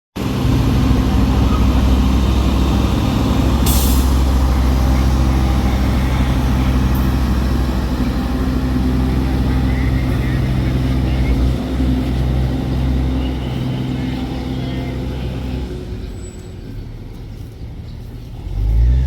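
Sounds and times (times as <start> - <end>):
locomotive engine droning: 0.2 - 19.0
air hiss: 3.6 - 6.7.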